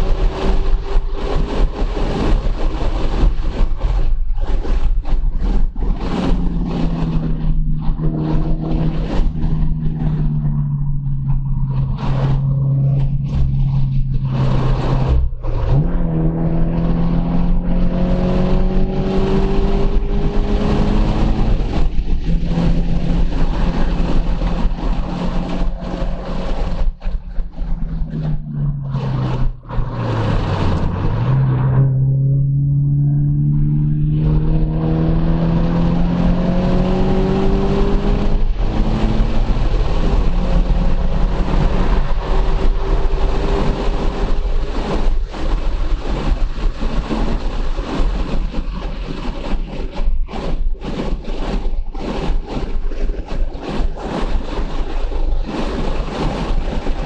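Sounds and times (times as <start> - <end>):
car engine revving: 0.0 - 57.0
road and wind noise: 0.0 - 57.0.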